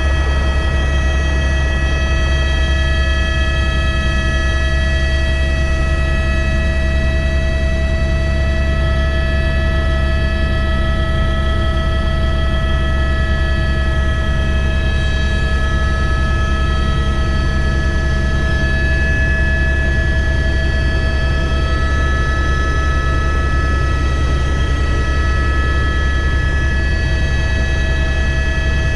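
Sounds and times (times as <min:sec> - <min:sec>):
high whining tones: 0:00.0 - 0:05.5
helicopter low drone: 0:00.0 - 0:28.9.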